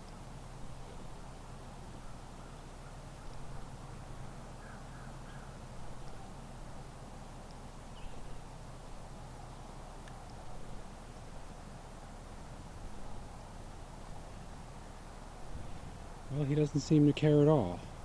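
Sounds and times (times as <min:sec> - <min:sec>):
low steady hum: 0:00.0 - 0:18.0
short bird calls: 0:02.0 - 0:06.4.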